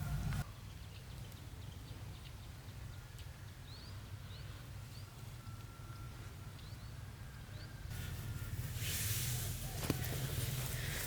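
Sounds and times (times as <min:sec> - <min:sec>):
small bird chirping: 0:00.0 - 0:07.9.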